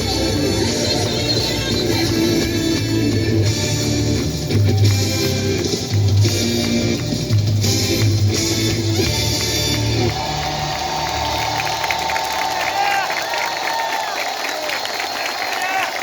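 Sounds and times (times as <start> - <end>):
guitar: 0.0 - 10.3.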